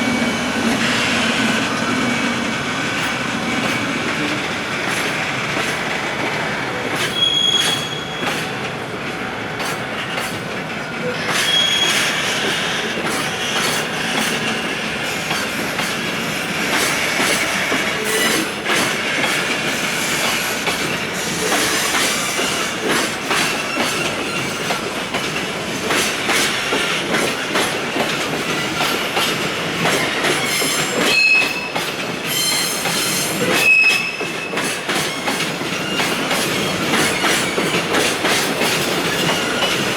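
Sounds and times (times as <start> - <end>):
train wheels clicking over rail joints: 0.0 - 39.9
high wheel squeals: 7.0 - 8.4, 11.2 - 13.8, 30.0 - 37.7.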